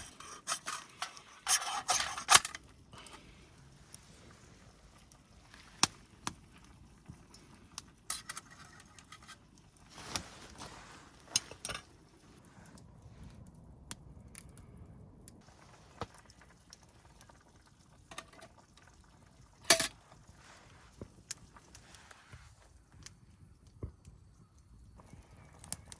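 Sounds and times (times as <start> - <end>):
camp cookware clinking and knocking: 0.0 - 3.2, 8.1 - 9.4, 10.0 - 12.0, 18.1 - 20.1.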